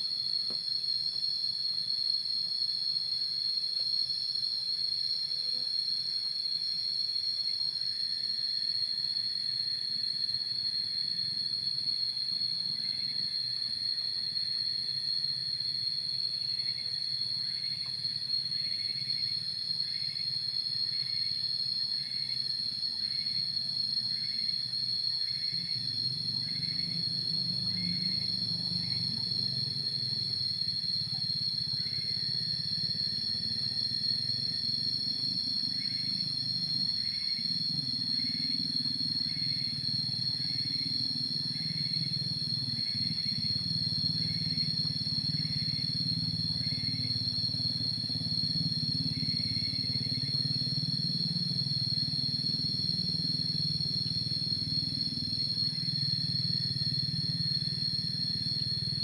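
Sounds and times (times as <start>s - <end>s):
high-pitched insect drone: 16.4s - 59.0s.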